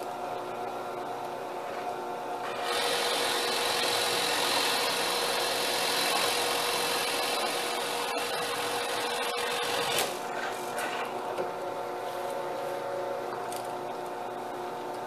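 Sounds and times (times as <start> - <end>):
electric drill motor running: 2.4 - 10.1
drill bit rasping into wood: 2.5 - 10.1.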